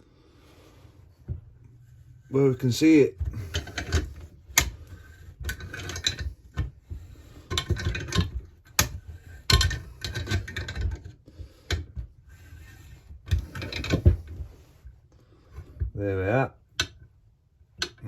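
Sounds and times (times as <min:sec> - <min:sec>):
spanner and metal parts clicking: 0:03.5 - 0:04.8, 0:05.4 - 0:06.3, 0:07.4 - 0:11.1.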